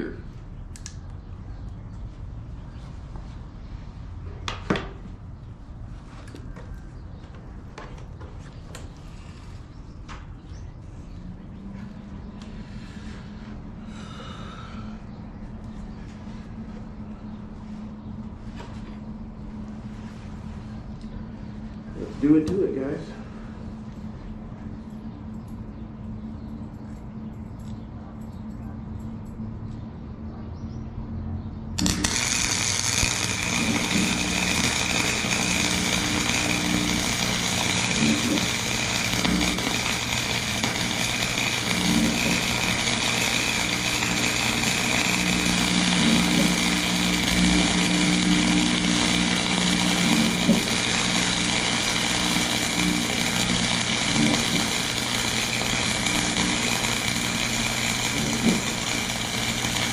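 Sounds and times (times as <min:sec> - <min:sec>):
welder low hum: 0:31.7 - 0:59.9
welding arc crackling: 0:31.8 - 0:59.9.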